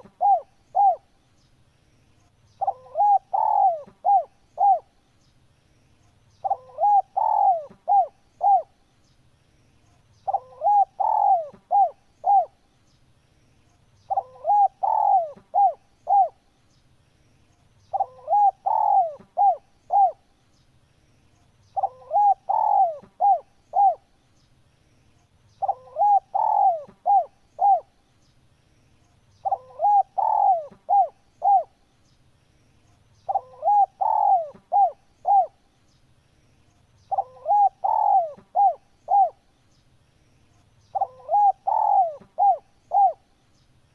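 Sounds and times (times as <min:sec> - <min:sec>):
dove cooing: 0:00.0 - 0:01.2, 0:02.6 - 0:04.9, 0:06.4 - 0:08.8, 0:10.2 - 0:12.6, 0:14.1 - 0:16.4, 0:17.9 - 0:20.2, 0:21.8 - 0:24.1, 0:25.6 - 0:27.9, 0:29.4 - 0:31.8, 0:33.3 - 0:35.6, 0:37.1 - 0:39.4, 0:40.9 - 0:43.2.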